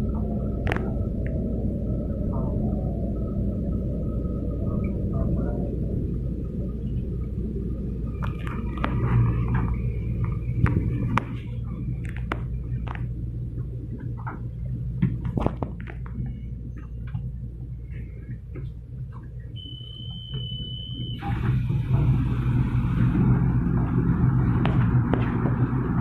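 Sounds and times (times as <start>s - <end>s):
train carriage hum: 0.0s - 26.0s
high beep: 19.6s - 21.3s.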